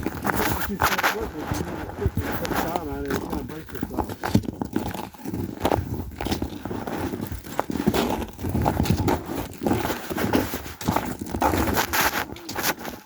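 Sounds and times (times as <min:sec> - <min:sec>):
footsteps on trail: 0:00.0 - 0:13.0.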